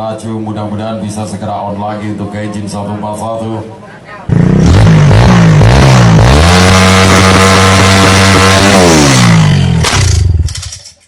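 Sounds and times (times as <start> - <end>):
engine revving: 4.3 - 10.8.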